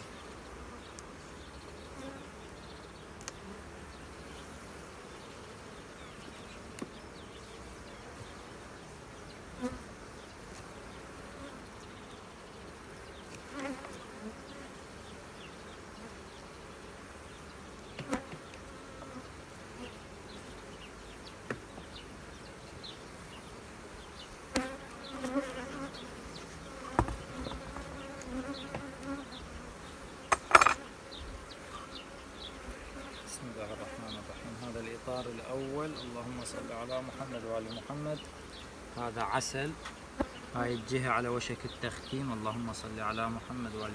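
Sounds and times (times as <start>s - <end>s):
honeybees buzzing: 0.0s - 43.9s
sharp knocks: 27.0s - 27.9s, 30.3s - 30.8s.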